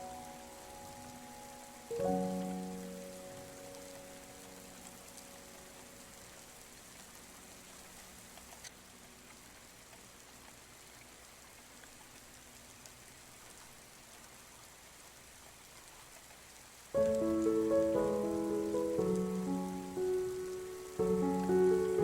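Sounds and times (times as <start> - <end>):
soft piano chords: 0.0 - 9.0, 17.0 - 22.0
faint water drips: 0.0 - 22.0
rain patter: 0.0 - 22.0.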